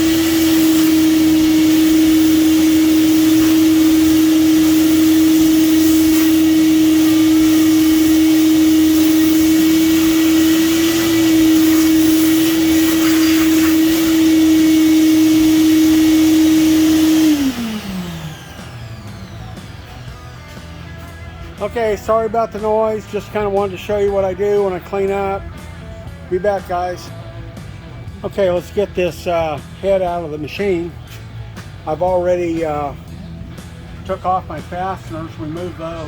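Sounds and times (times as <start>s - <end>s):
metal chips being sucked up: 0.0s - 16.3s
vacuum motor spinning down: 0.0s - 20.4s
shop vacuum running: 0.0s - 36.0s.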